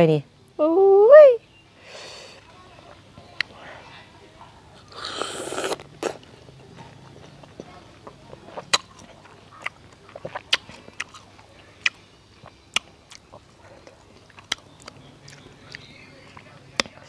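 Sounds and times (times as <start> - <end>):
person chewing berries: 4.8 - 17.0.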